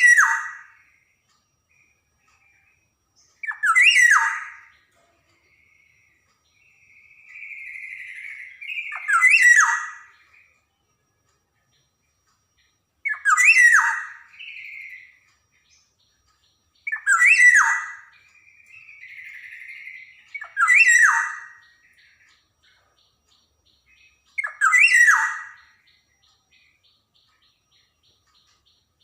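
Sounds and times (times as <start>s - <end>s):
oriole calling: 0.0s - 0.9s, 3.4s - 4.7s, 6.9s - 10.3s, 13.0s - 15.2s, 16.8s - 22.3s, 23.8s - 26.7s.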